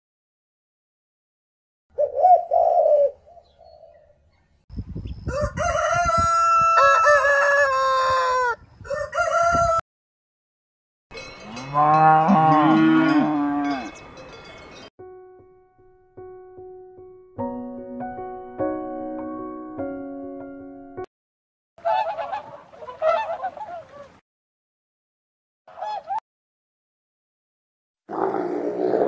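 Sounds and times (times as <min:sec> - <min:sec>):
pigeon cooing: 0:02.0 - 0:04.1
rooster crowing: 0:05.2 - 0:09.8.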